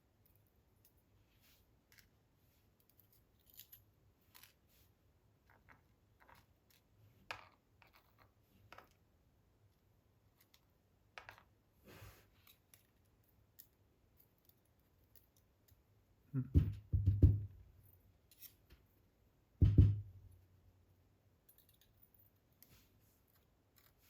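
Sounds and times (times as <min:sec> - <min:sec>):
tweezers clicking and scraping metal: 0:18.2 - 0:18.7, 0:21.5 - 0:24.0
heavier knocks: 0:19.6 - 0:20.1.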